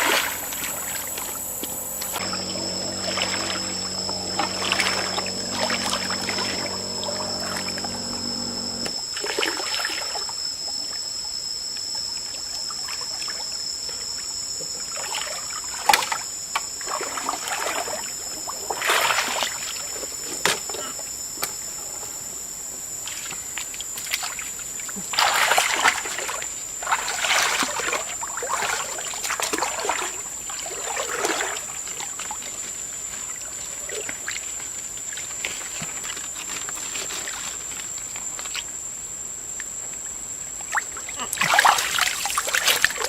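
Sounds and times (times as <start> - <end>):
high-pitched whine: 0.0 - 22.7
water sloshing and splashing: 41.3 - 43.0.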